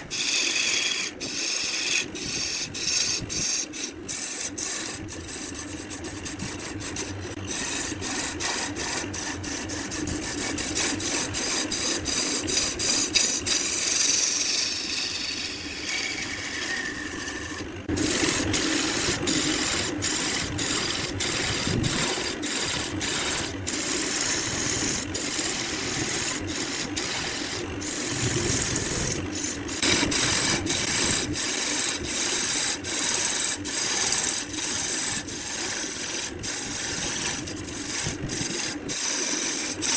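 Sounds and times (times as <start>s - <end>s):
wood scraping and rasping: 0.0s - 39.9s
machine motor hum: 16.8s - 39.9s.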